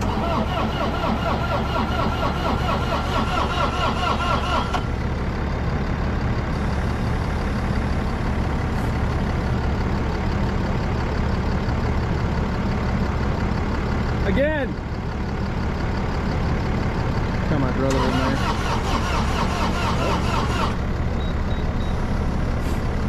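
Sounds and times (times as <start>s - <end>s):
engine starter cranking: 0.0s - 4.9s, 17.8s - 21.0s
truck engine idling: 0.0s - 23.0s.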